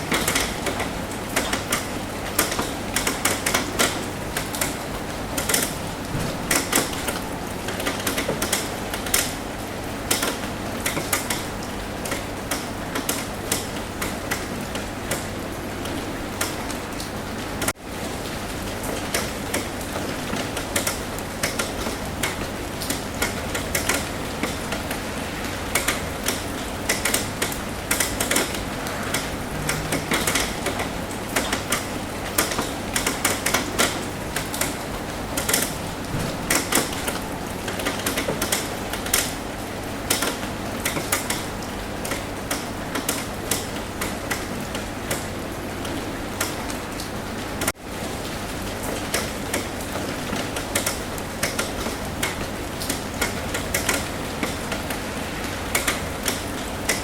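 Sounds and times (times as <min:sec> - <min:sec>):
rain tapping on a roof: 0:00.0 - 0:57.0.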